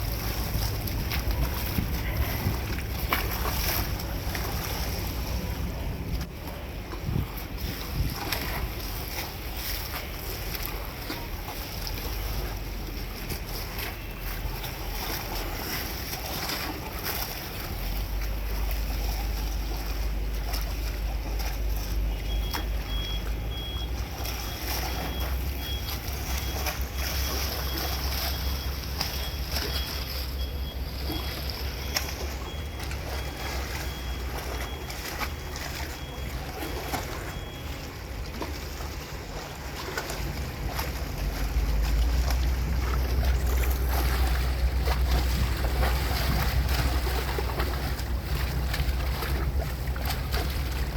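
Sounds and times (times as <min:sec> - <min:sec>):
ferry engine drone: 0:00.0 - 0:50.9
water noise: 0:00.0 - 0:50.9
wind: 0:00.0 - 0:50.9
short high beeps: 0:22.3 - 0:37.8.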